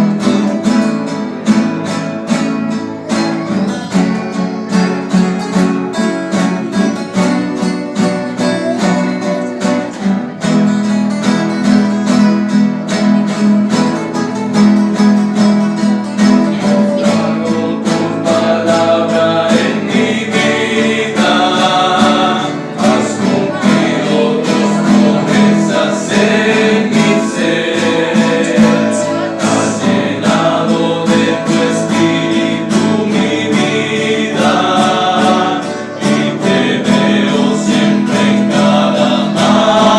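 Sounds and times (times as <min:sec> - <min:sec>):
acoustic guitars strummed: 0:00.0 - 0:39.9
men singing: 0:15.8 - 0:39.9.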